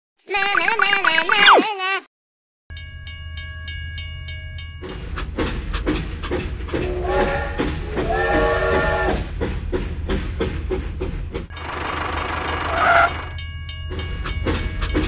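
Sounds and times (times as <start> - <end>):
electronic whistle toots: 6.8 - 9.3
toy train wheels and motor clicking: 11.5 - 13.4.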